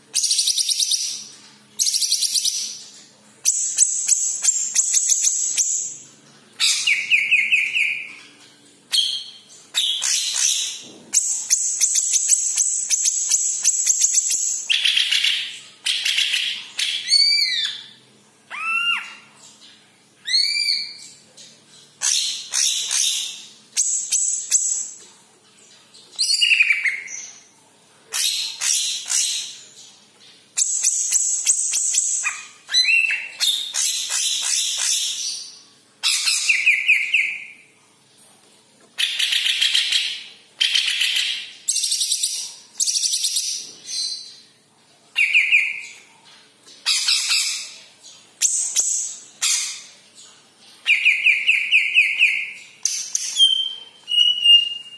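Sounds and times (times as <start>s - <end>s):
bird singing varied phrases: 6.6s - 8.2s, 8.9s - 24.9s, 26.2s - 27.4s, 30.6s - 37.7s, 45.2s - 46.1s, 50.8s - 54.9s.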